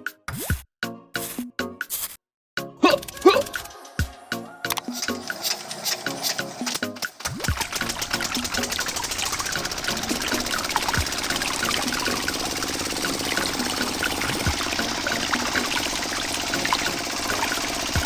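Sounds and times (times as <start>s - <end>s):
small motor humming: 4.8s - 18.0s
water trickling and splashing: 4.8s - 18.0s
water dripping: 7.3s - 18.0s.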